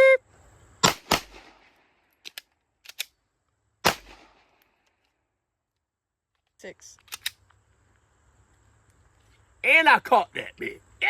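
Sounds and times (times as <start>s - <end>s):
gunshots: 0.8s - 1.8s, 3.8s - 4.5s
gun reloading clicks: 2.1s - 3.2s, 7.0s - 7.6s.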